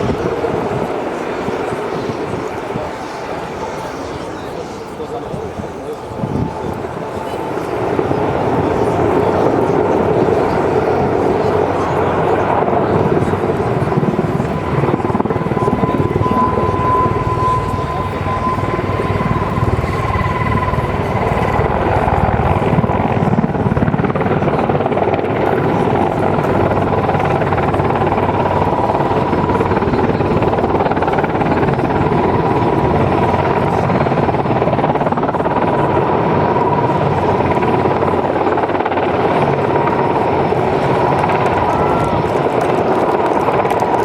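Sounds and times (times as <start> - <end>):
helicopter rotor noise: 0.0 - 44.0
high engine whine: 0.0 - 44.0.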